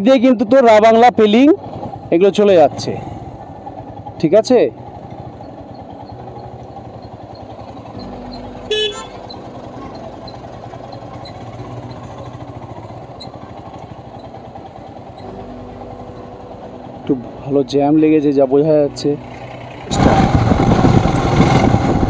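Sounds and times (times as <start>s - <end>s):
motorcycle engine running: 0.9s - 22.0s
vehicle horn toot: 8.7s - 9.3s.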